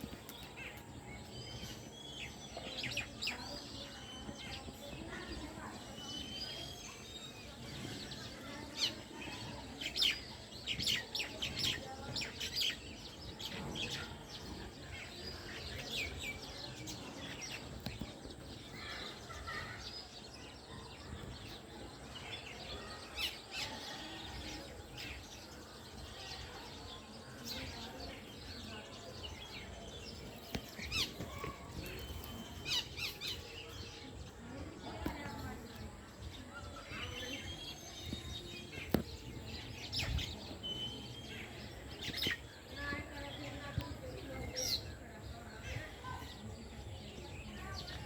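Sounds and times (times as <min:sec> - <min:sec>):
sparrows chirping: 0:00.0 - 0:48.0.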